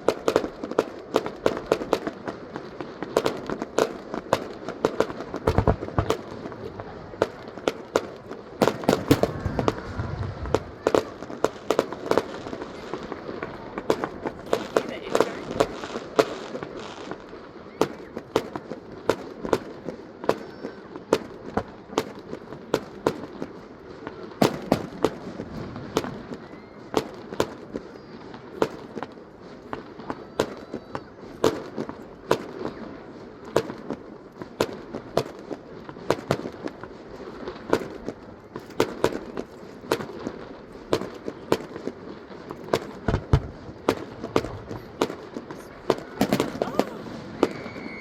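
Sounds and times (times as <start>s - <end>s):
fireworks bangs: 0.0s - 48.0s
background rumble: 9.1s - 10.8s.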